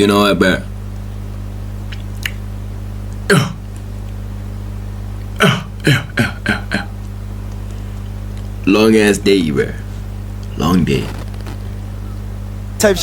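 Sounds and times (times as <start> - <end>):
steady low hum: 0.0 - 13.0
person clearing throat: 3.3 - 3.6, 5.4 - 7.0.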